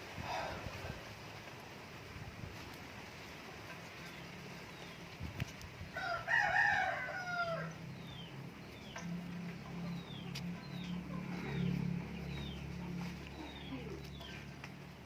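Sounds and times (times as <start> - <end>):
rooster crowing: 5.9 - 7.8.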